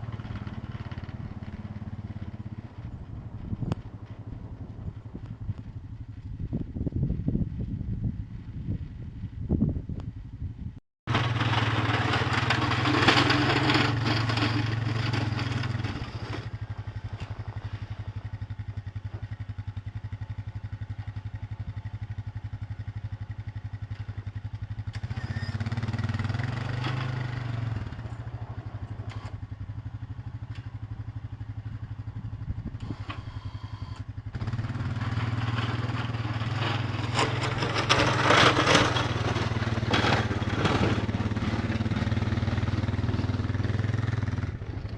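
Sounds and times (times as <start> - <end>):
rushing grinding noise: 11.1 - 18.4, 34.4 - 44.9
small engine running: 11.1 - 19.5, 23.8 - 44.9.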